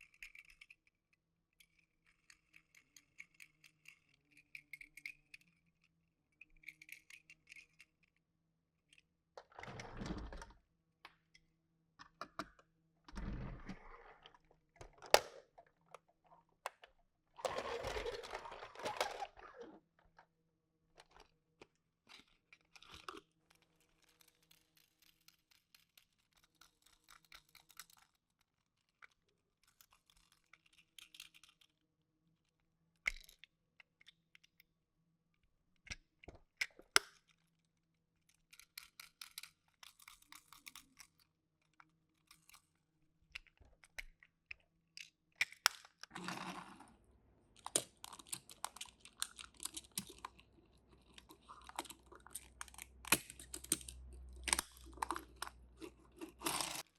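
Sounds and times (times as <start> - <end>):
small toy cars clicking: 0.0 - 0.9, 1.6 - 8.2, 17.4 - 19.7, 21.0 - 31.8, 38.2 - 46.6, 47.5 - 56.9
toy packaging rustling: 17.4 - 19.8, 46.0 - 56.9.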